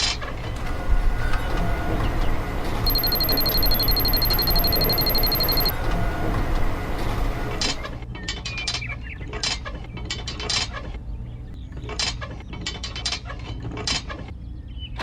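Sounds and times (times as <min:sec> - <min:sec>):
rapid high electronic beeping: 0:02.9 - 0:05.7.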